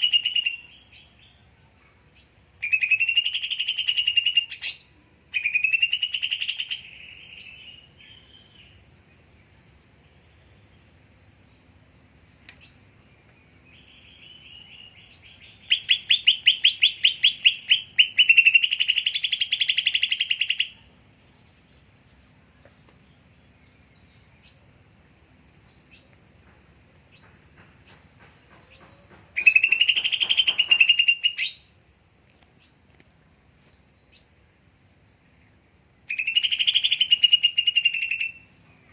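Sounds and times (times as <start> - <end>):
bird song bursts: 0.0 - 1.5, 2.2 - 9.7, 12.5 - 22.0, 27.1 - 31.8, 35.4 - 38.9.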